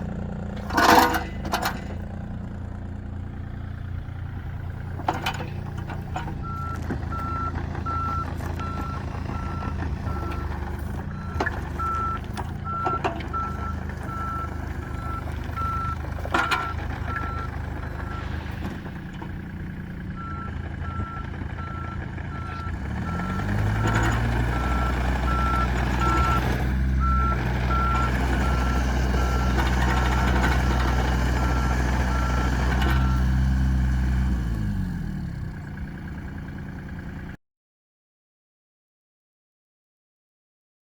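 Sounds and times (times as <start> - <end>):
excavator diesel engine running: 0.0 - 37.4.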